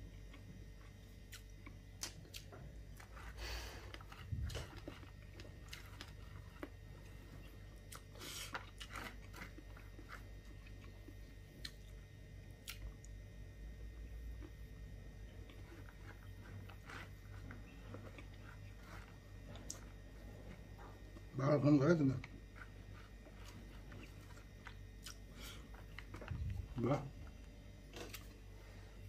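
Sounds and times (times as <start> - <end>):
person chewing food: 0.0 - 21.4, 22.2 - 29.0
low hum: 0.0 - 29.0
small clicks and crunches: 1.4 - 7.2, 7.9 - 12.0.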